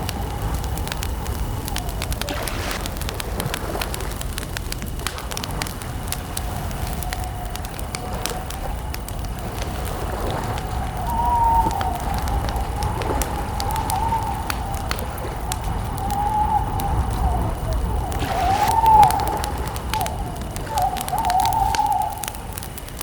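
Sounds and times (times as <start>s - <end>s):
wavering whistle-like tone: 0.0s - 2.9s, 11.0s - 22.5s
campfire crackling: 0.0s - 23.0s.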